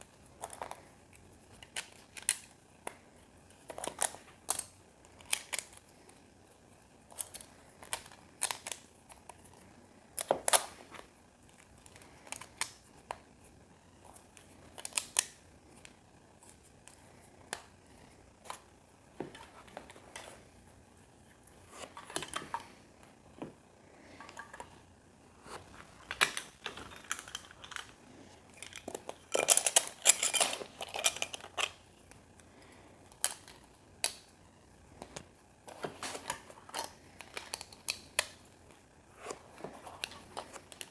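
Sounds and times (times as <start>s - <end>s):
plastic pieces clicking and rattling: 26.1s - 31.8s.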